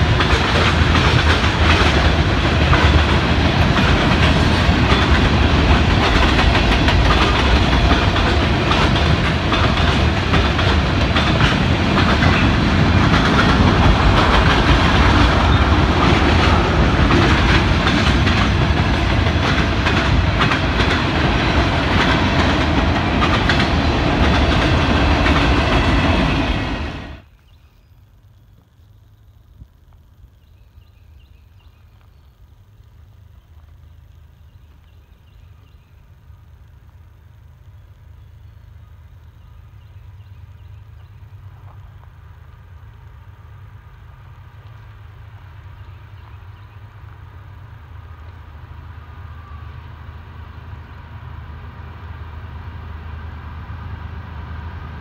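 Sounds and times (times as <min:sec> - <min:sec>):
wheels clicking over rail joints: 0:00.0 - 0:26.8
train wheels rumbling on rail: 0:00.0 - 0:27.3, 0:28.4 - 0:55.0
faint steady whine: 0:00.0 - 0:55.0.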